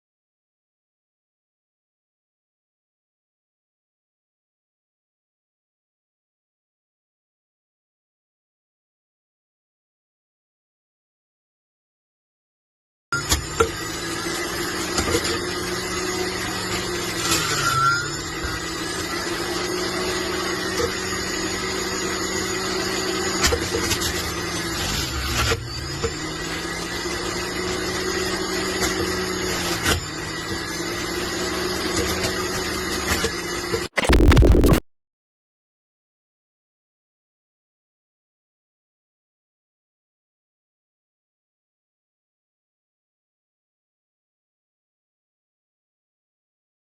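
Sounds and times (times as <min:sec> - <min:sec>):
electric juicer motor humming: 0:13.2 - 0:34.0.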